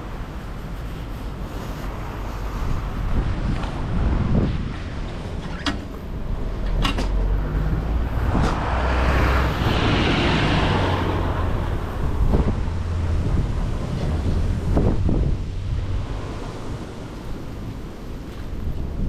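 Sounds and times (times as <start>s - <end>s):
wind buffeting microphone: 0.0s - 19.0s
bike knocking and rattling: 5.1s - 7.4s.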